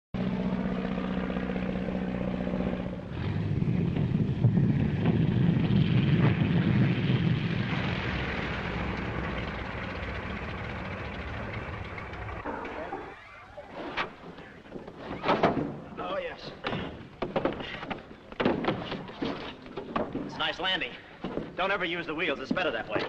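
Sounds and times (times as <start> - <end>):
propeller engine running: 0.2 - 14.9
rough rumbling noise: 0.2 - 22.8.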